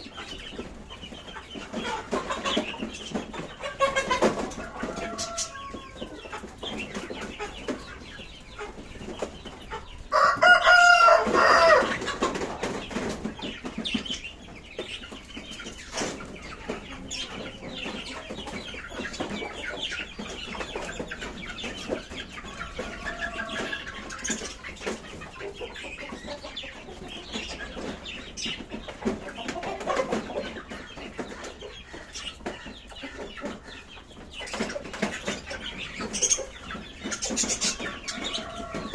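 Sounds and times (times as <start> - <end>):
birds chattering and chirping: 0.0 - 38.9.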